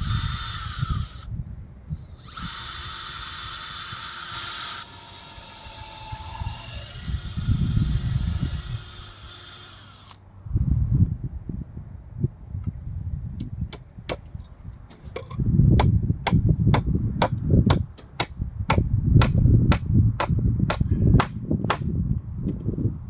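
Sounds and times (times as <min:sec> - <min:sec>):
hammer striking nails into wood: 0:15.8 - 0:21.9.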